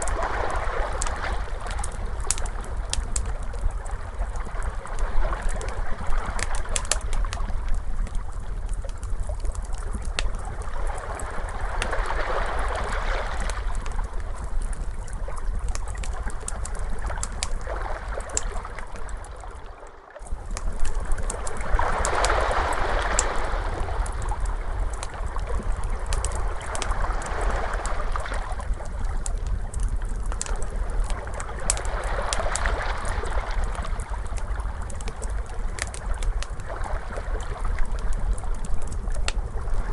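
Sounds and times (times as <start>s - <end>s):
wood fire crackling: 0.0s - 19.6s, 20.2s - 39.9s
constant low rumble: 0.0s - 39.9s
ocean waves washing in: 20.8s - 28.7s.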